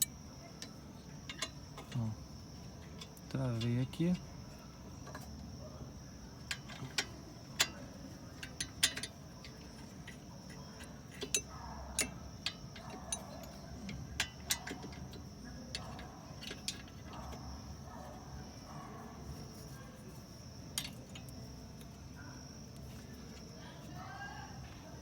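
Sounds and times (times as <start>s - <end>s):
metallic clicks of hand tools: 0.0s - 0.7s, 1.3s - 2.0s, 6.5s - 17.5s, 20.8s - 21.9s.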